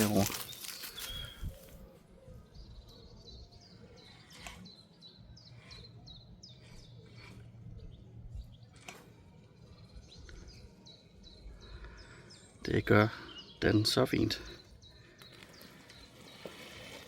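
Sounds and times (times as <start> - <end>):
small bird chirping: 0.1 - 12.5.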